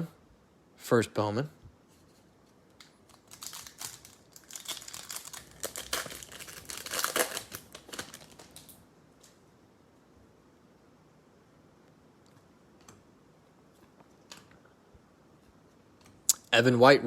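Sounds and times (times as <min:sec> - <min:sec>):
foil wrapper tearing and crinkling: 0:03.0 - 0:08.8.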